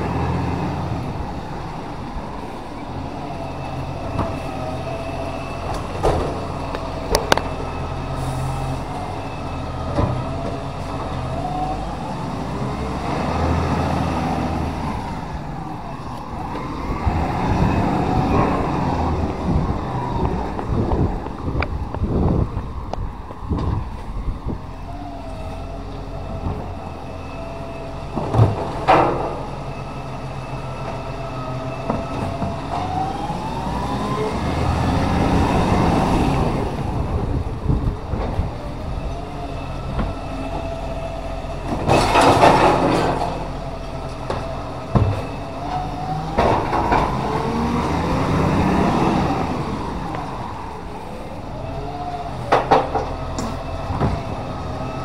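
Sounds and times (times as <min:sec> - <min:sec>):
truck engine and hydraulics whine: 0:00.0 - 0:55.0.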